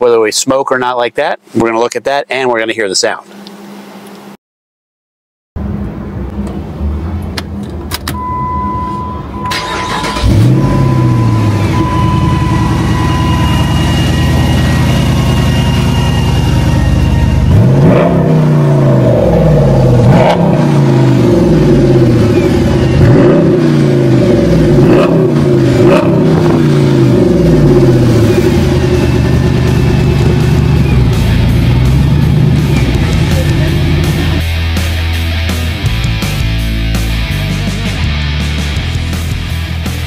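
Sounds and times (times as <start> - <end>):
engine revving in blips: 5.6 - 34.6
engine idling: 9.3 - 17.9, 19.4 - 40.0
engine cranking: 9.5 - 10.7.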